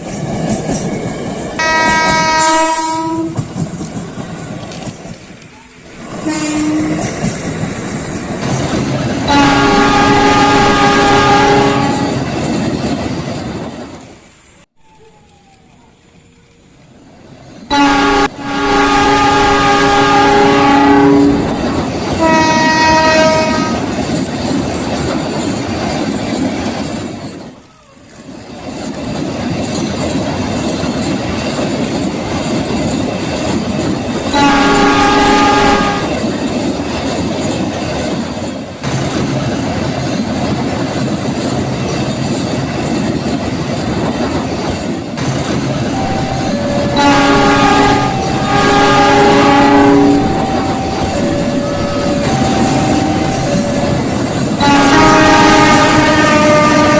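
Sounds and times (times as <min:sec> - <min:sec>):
moving train rumble and clatter: 0:00.0 - 0:56.9
train horn blasts: 0:01.6 - 0:03.5, 0:06.1 - 0:07.2, 0:09.3 - 0:12.3, 0:17.7 - 0:23.9, 0:34.3 - 0:36.2, 0:45.9 - 0:56.9.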